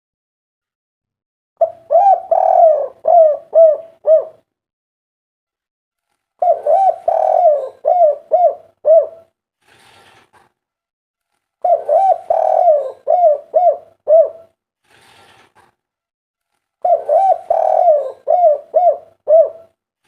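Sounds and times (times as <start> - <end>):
dove cooing: 1.6 - 4.5, 6.4 - 9.3, 11.6 - 14.6, 16.8 - 19.8.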